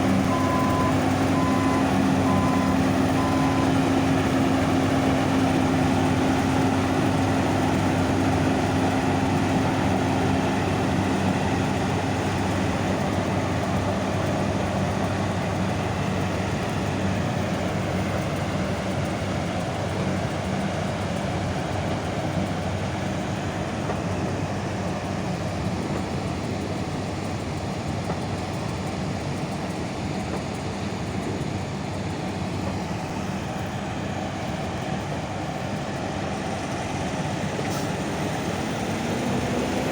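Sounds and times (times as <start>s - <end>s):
diesel farm machine running: 0.0s - 39.9s.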